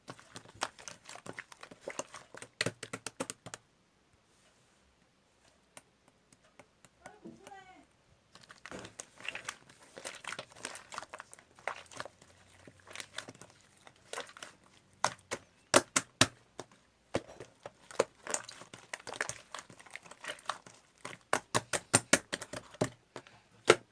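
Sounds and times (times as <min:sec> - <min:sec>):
slime squished by hand popping: 0:14.0 - 0:23.0.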